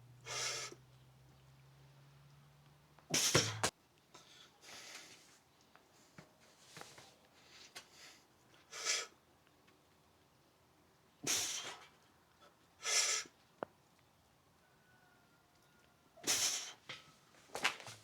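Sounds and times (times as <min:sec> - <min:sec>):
man exhaling forcefully: 0:03.1 - 0:03.7, 0:11.2 - 0:11.8, 0:16.2 - 0:16.8.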